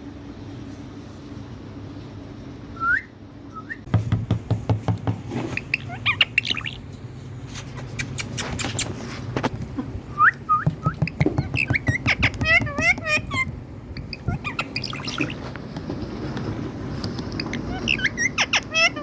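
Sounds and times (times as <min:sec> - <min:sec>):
parrot chirping: 0:05.5 - 0:06.9, 0:10.1 - 0:15.5, 0:17.2 - 0:19.0
parrot clicking: 0:10.6 - 0:15.0.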